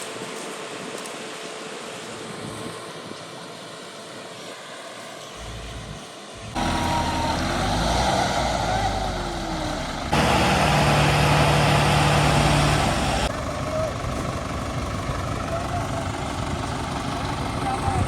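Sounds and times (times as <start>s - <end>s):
tractor engine running: 6.5s - 18.0s.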